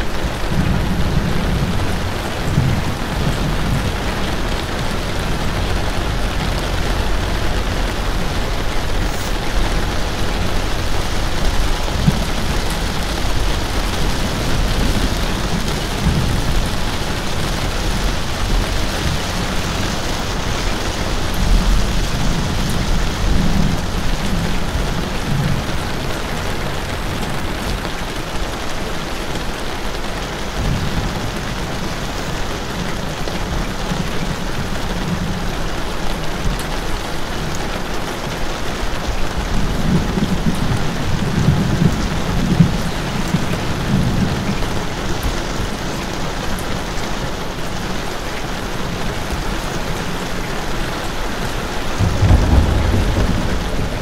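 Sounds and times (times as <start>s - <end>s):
thunder rumbling: 0.0s - 46.6s, 50.9s - 54.0s
steady rain falling: 0.0s - 54.0s.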